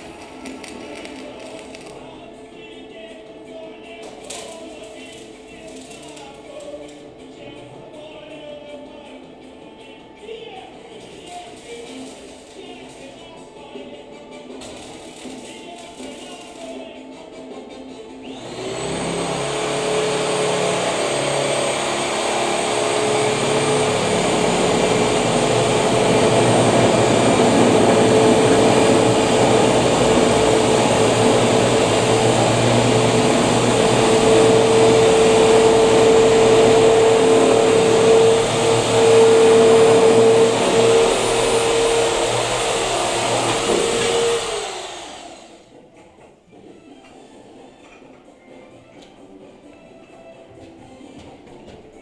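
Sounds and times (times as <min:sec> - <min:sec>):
electric motor humming: 0:18.3 - 0:45.5.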